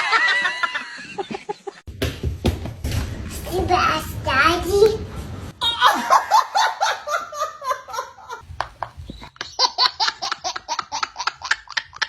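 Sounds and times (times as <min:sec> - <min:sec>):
baby laughing: 0:09.2 - 0:12.0.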